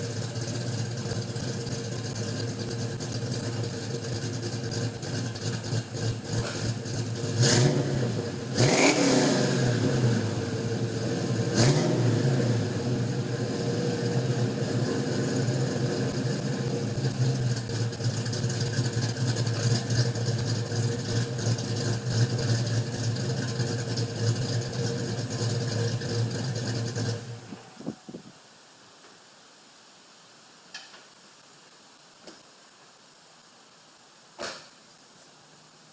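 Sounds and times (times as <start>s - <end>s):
car engine revving and idling: 0.0s - 27.8s.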